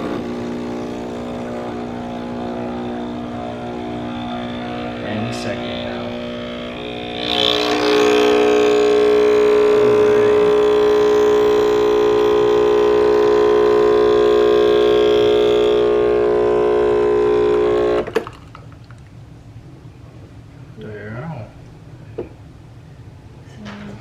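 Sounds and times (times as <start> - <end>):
espresso machine pump running: 0.0 - 18.6.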